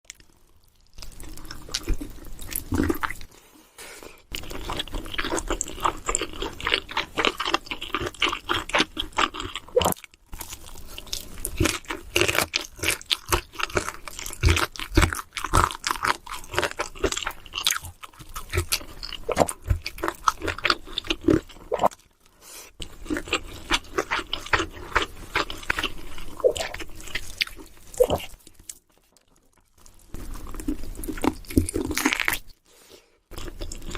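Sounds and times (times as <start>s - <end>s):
crisp chewing and crunching: 0.0s - 3.4s, 4.2s - 33.9s.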